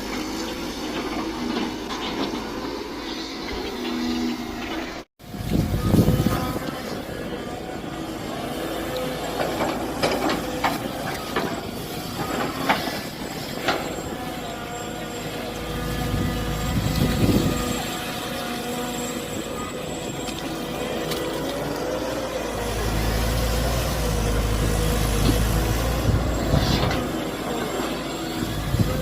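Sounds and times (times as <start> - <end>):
mini excavator engine running: 0.0 - 29.0.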